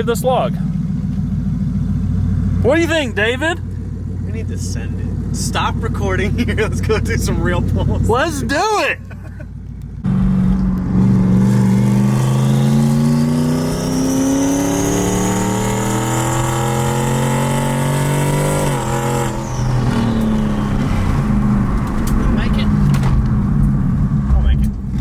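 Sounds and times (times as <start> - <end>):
car engine accelerating: 9.5 - 25.0.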